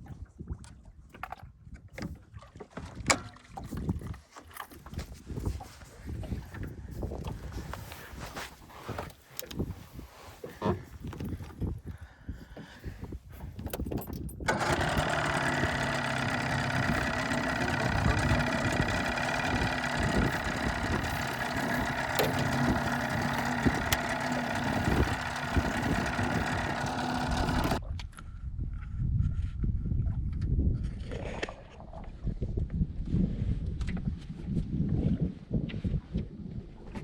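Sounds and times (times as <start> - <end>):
boat engine running: 12.8 - 27.8.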